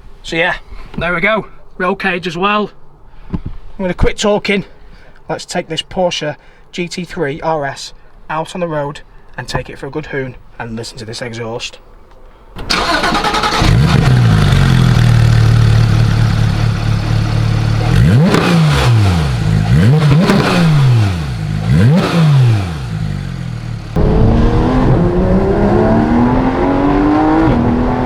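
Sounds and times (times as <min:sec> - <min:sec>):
engine accelerating: 0:12.7 - 0:28.0
car engine idling and revving: 0:12.8 - 0:28.0.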